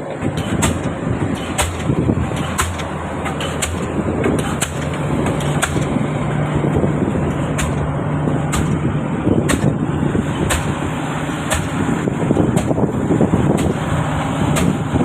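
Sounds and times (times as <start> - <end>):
rig engine hum: 0.0 - 15.0
pile hammer striking: 0.4 - 6.0, 7.4 - 9.8, 10.5 - 10.8, 11.5 - 11.8, 14.6 - 14.8.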